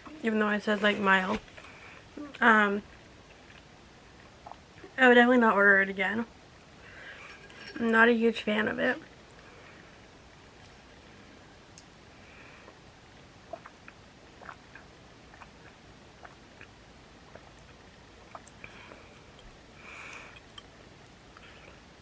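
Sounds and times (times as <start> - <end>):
person chewing food: 12.6 - 21.8.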